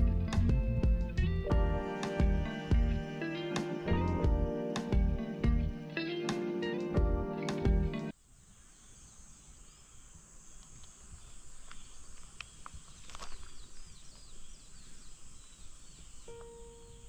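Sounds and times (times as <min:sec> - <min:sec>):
music track: 0:00.0 - 0:08.1
small birds chirping: 0:07.4 - 0:17.0.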